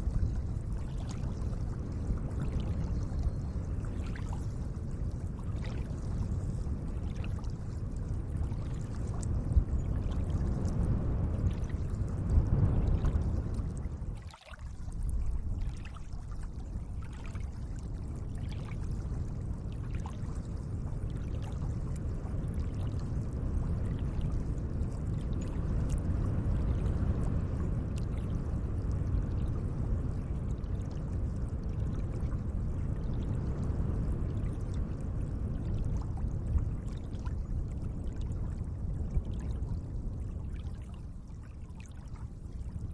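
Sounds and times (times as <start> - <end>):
faint dripping ticks: 0.0 - 24.4, 25.0 - 29.5
lake water lapping: 14.2 - 15.0.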